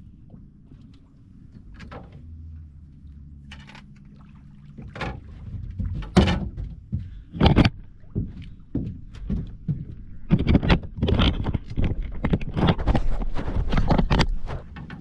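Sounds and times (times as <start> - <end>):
faint low hum: 0.0 - 15.0
hollow knocks on boat: 4.7 - 12.4.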